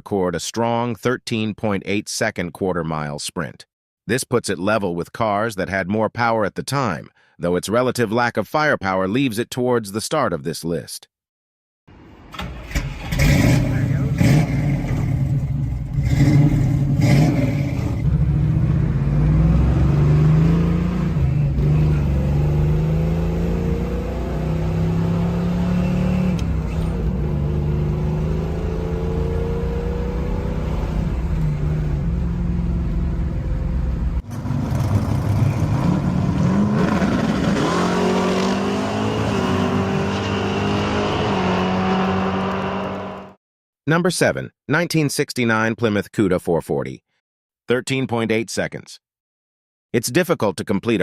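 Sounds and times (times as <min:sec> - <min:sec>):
car engine revving: 0:12.3 - 0:43.4.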